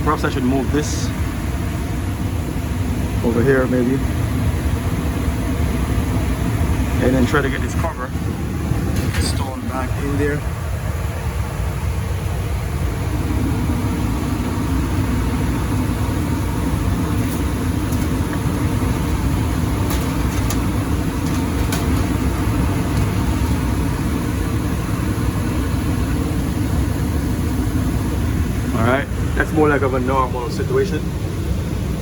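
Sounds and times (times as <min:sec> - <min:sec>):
gas furnace rumble and hum: 0:00.0 - 0:32.0.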